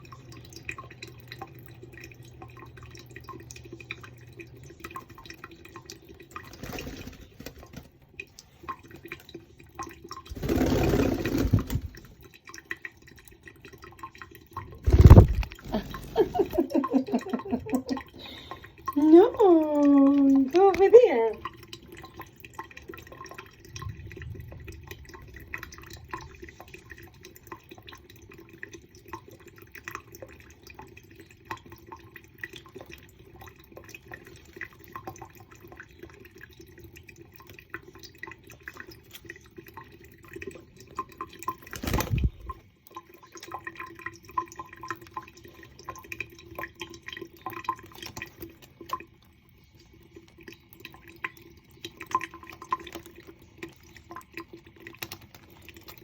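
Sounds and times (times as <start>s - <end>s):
water drips and splashes: 0.0s - 56.0s
water running from a tap: 0.0s - 56.0s.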